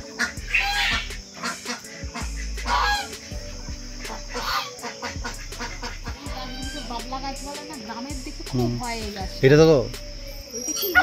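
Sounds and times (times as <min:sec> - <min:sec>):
geese honking: 0:00.0 - 0:08.2.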